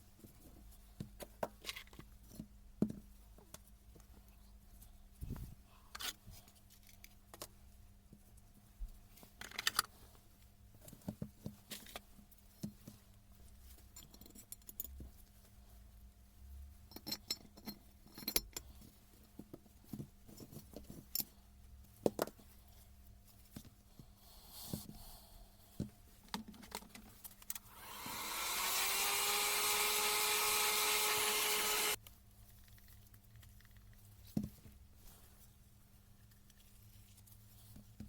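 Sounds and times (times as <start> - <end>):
power tool whirring: 27.7 - 32.0.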